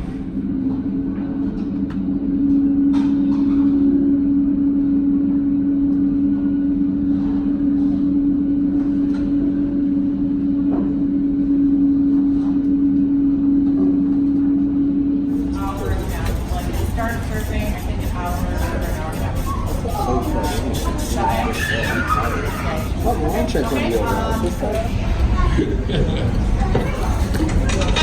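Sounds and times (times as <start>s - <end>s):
machine humming drone: 0.0s - 28.0s.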